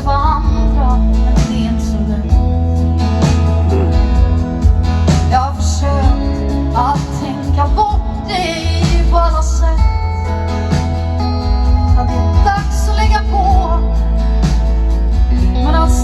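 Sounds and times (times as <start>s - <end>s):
woman singing pop song: 0.0s - 4.2s, 5.0s - 10.4s, 11.9s - 14.4s, 15.3s - 16.0s
live band playing: 0.0s - 16.0s
heavy bass line: 0.3s - 6.8s.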